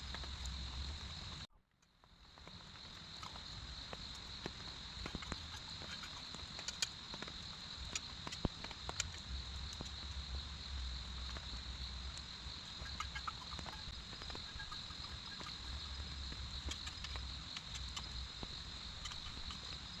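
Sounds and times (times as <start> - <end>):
insects droning: 0.0 - 20.0
sharp ticks and taps: 3.2 - 10.2, 16.3 - 19.8.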